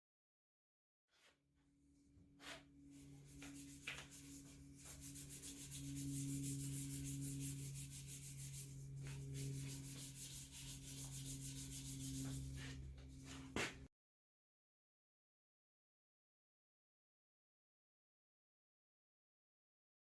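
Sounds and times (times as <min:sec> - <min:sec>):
sandpaper rubbing strokes: 0:02.4 - 0:13.8
steady low hum: 0:02.6 - 0:13.9.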